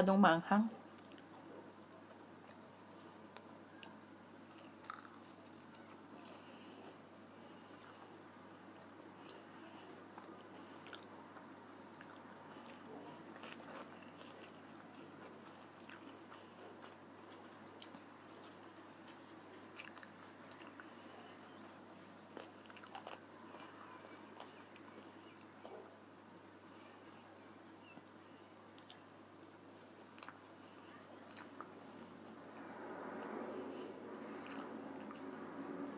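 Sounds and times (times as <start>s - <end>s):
person chewing chicken wings: 3.4s - 25.9s, 28.8s - 30.4s, 34.4s - 35.4s.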